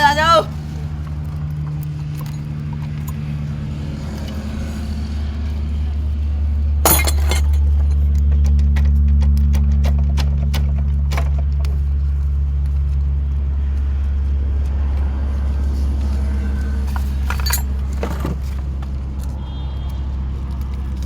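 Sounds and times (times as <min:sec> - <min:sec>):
sharp metallic clinks: 0:06.9 - 0:08.0, 0:17.0 - 0:18.3.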